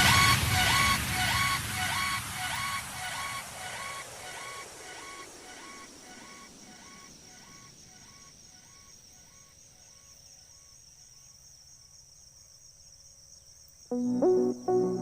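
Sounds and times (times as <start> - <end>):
music: 0.0 - 4.5, 13.9 - 15.0
insects trilling: 3.7 - 14.0.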